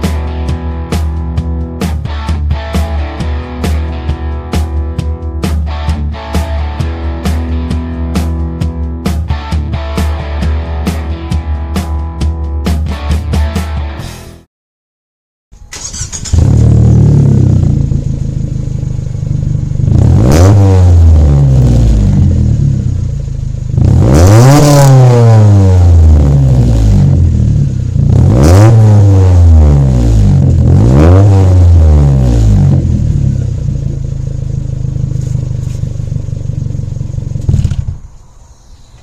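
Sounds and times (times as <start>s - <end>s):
car engine revving: 15.7s - 38.3s.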